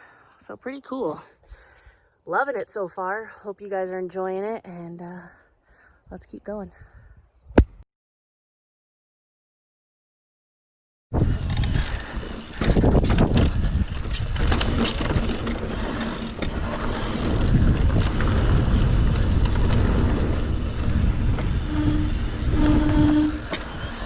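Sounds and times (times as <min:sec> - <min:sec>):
bike frame and chain rattling: 0:11.2 - 0:24.0
wind buffeting microphone: 0:11.2 - 0:24.0.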